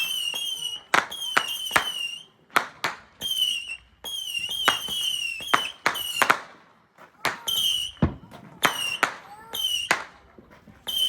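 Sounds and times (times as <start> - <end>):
firework whistles shrieking: 0.0 - 2.3, 3.2 - 6.3, 7.4 - 10.1
firework bangs: 0.0 - 11.0.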